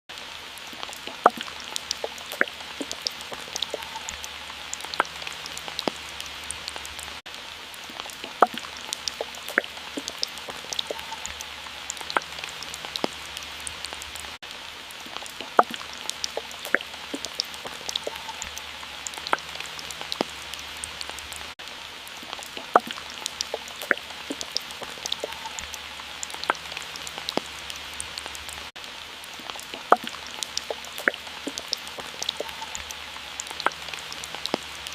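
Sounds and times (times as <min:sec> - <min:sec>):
rain-like hiss of water: 0:00.1 - 0:34.9
water drops plinking: 0:01.0 - 0:06.0, 0:08.2 - 0:13.1, 0:15.4 - 0:19.6, 0:22.6 - 0:27.4, 0:29.8 - 0:32.9.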